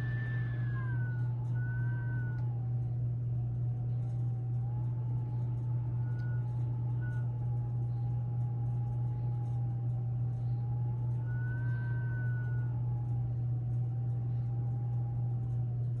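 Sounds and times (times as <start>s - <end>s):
blizzard wind whistling: 0.0s - 2.8s
steady low hum: 0.0s - 16.0s.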